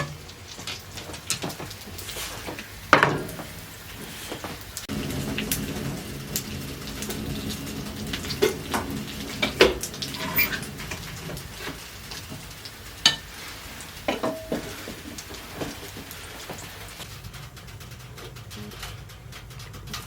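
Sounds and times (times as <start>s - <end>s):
kitchenware clinking and scraping: 1.0s - 4.6s, 7.2s - 16.8s
steady low hiss: 2.0s - 17.0s.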